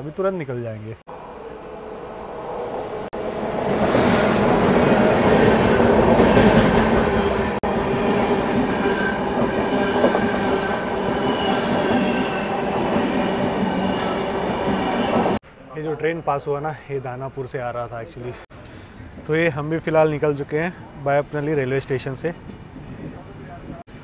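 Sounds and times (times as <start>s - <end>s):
passing train rumble: 1.1s - 15.4s.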